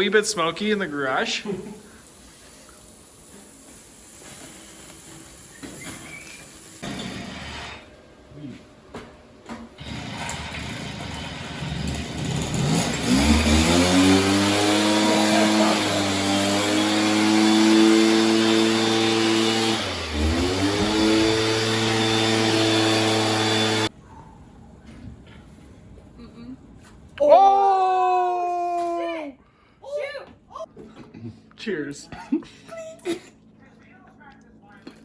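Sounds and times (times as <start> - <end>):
rushing hiss: 0.0 - 6.8
engine revving: 9.8 - 23.9.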